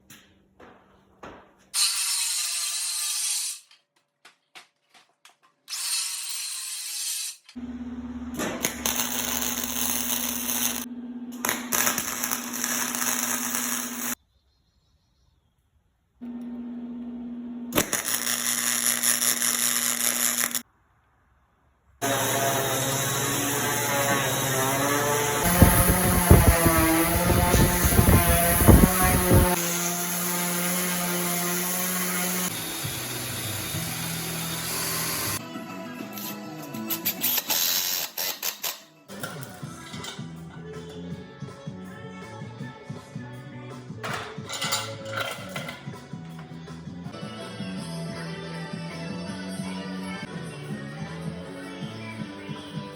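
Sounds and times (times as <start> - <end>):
power tool motor hum: 7.6 - 14.2, 22.0 - 35.4
harsh grinding: 22.0 - 35.4.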